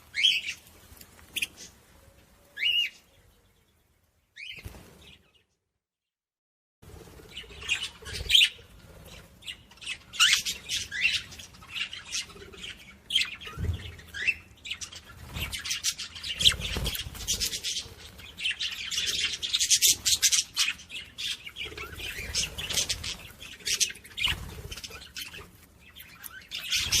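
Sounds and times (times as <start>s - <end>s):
parrots chirping and squawking: 7.3s - 27.0s.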